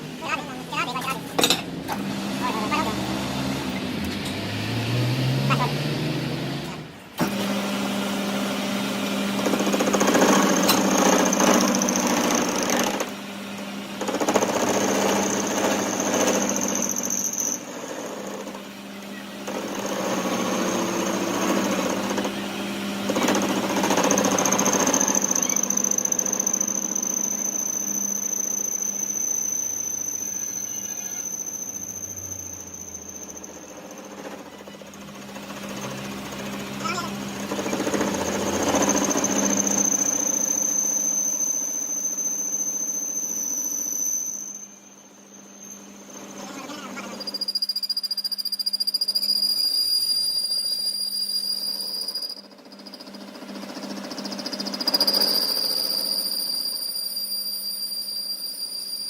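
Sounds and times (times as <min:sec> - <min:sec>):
metal cutting noise: 0:00.0 - 0:13.2, 0:14.0 - 0:44.1
machine motor hum: 0:00.0 - 0:41.6
high-pitched squeal: 0:23.2 - 0:35.0, 0:35.7 - 0:53.2, 0:53.8 - 0:59.0.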